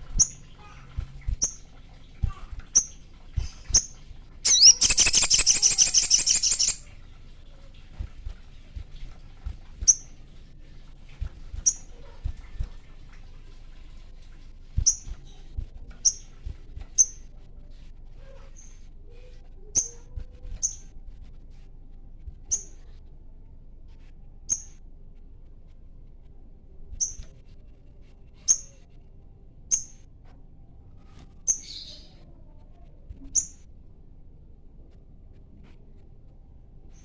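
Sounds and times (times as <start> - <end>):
bird giving sharp high chirps: 4.4 - 6.8.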